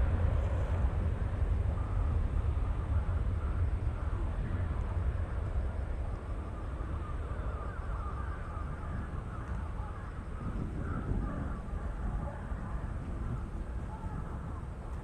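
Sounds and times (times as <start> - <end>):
steady low rumble: 0.0 - 15.0
crows cawing: 7.5 - 11.6.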